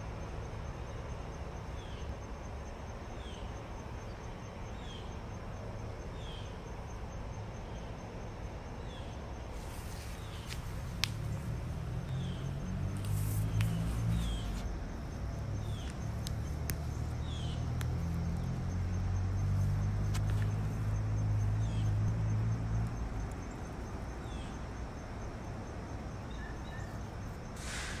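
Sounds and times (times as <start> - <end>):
bird chirping: 3.1 - 6.7, 8.8 - 24.6, 26.2 - 27.2
low motor hum: 9.6 - 24.4.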